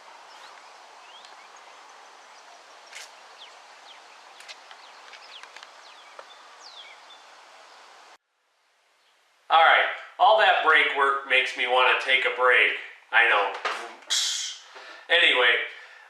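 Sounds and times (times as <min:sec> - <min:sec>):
small birds chirping: 0:00.0 - 0:08.2
outdoor background hiss: 0:00.0 - 0:16.0.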